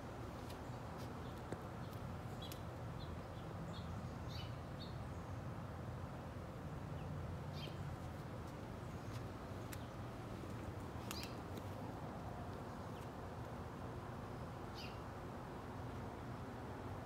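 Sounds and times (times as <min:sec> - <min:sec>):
birds chirping: 0:00.4 - 0:05.5, 0:07.0 - 0:13.6, 0:14.2 - 0:15.1.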